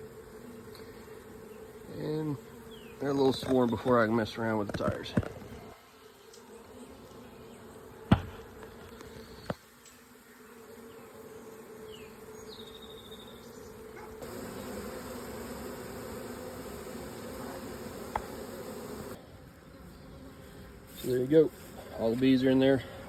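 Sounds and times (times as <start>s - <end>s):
bees buzzing: 0.0s - 23.0s
sharp knocks: 8.1s - 8.4s.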